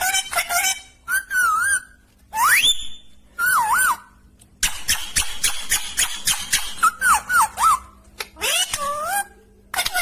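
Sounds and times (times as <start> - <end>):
parrot whistling: 1.0 - 8.6
parrot clicking chatter: 4.6 - 10.0.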